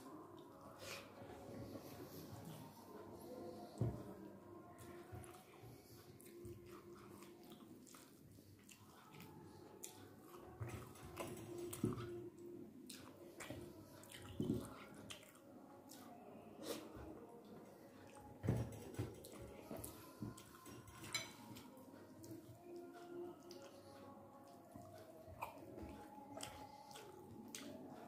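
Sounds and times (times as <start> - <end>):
chewing with wet mouth clicks: 6.2 - 12.2, 12.8 - 16.2, 19.2 - 28.0.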